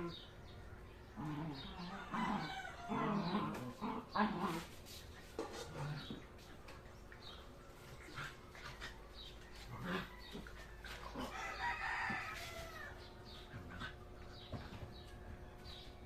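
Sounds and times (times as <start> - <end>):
rooster crowing: 1.8 - 3.4, 9.6 - 13.1.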